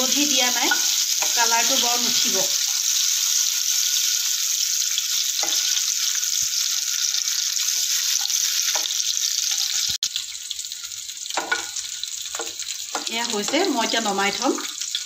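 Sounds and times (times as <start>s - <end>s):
eggs sizzling in hot oil: 0.0s - 15.0s.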